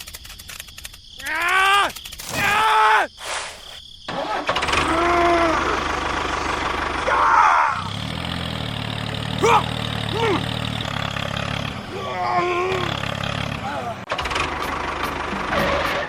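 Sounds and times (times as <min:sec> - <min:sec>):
small engine running: 0:04.2 - 0:16.0.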